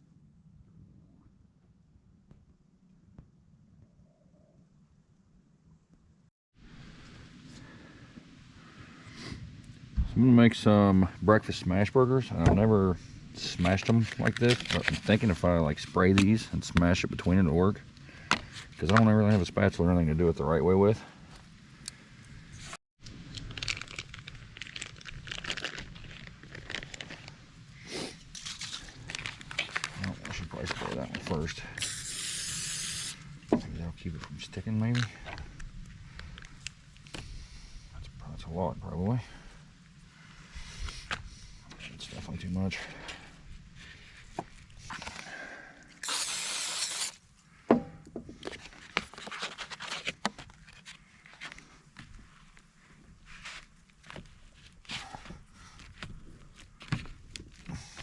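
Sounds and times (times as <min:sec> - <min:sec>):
wrapping crinkling and rustling: 0:13.6 - 0:15.4, 0:23.1 - 0:27.5, 0:28.2 - 0:31.5, 0:46.0 - 0:47.2, 0:48.5 - 0:54.9
aerosol spray hissing: 0:31.8 - 0:33.2, 0:46.0 - 0:47.2.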